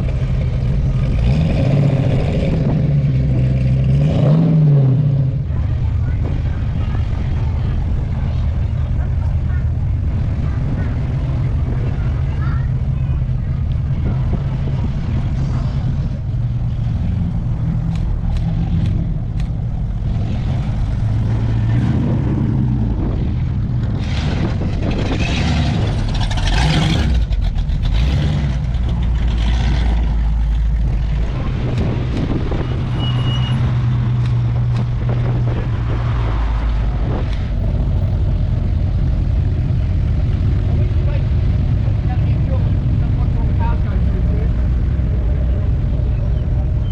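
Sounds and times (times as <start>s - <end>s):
car engines rumbling past: 0.0s - 46.9s.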